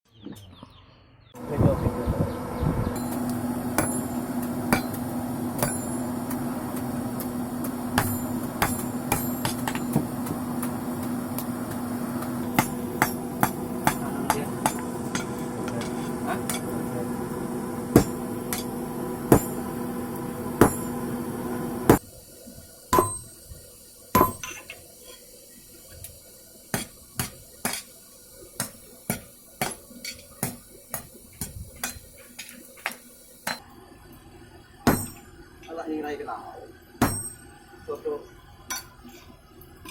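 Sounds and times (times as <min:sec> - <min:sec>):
steady hum: 0:01.4 - 0:24.7
hammer striking metal on anvil: 0:03.0 - 0:16.8, 0:17.9 - 0:19.8, 0:20.6 - 0:21.1, 0:22.9 - 0:23.4, 0:24.2 - 0:24.7, 0:26.8 - 0:27.9, 0:28.6 - 0:32.0, 0:34.9 - 0:35.3, 0:37.0 - 0:37.5.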